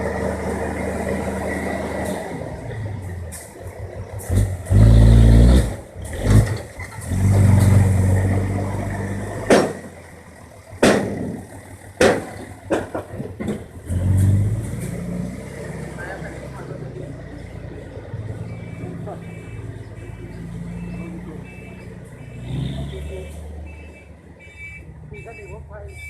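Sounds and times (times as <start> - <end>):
diesel truck engine revving: 0.0 - 25.8
sharp bangs: 9.4 - 10.0, 10.8 - 13.6.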